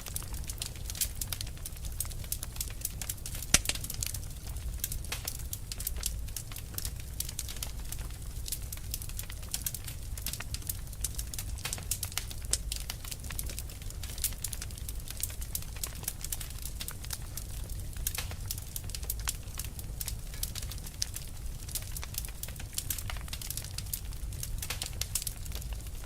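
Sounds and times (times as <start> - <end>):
fire crackling: 0.0 - 26.0.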